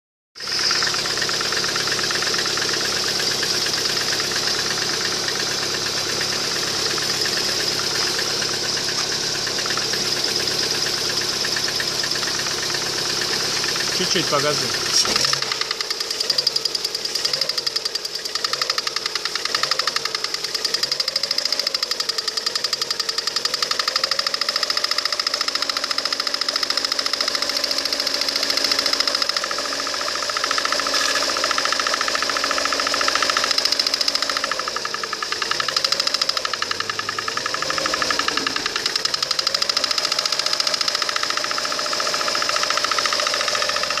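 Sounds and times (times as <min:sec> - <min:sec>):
car engine ticking knock: 0:00.4 - 0:44.0
fast ticking knock: 0:31.5 - 0:44.0.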